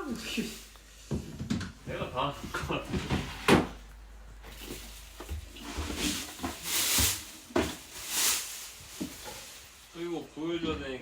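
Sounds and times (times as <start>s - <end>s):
plastic wrapping crinkling: 0.0s - 1.0s, 4.3s - 10.2s.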